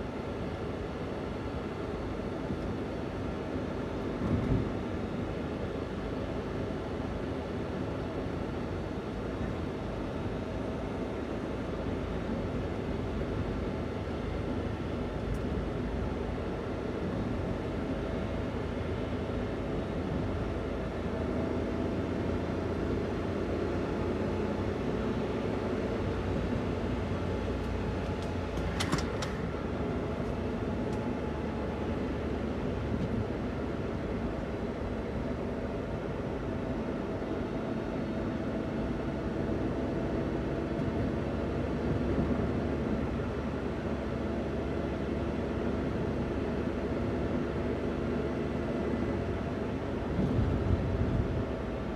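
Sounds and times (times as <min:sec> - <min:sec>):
van engine running: 0:00.0 - 0:51.9
road noise: 0:23.4 - 0:35.7.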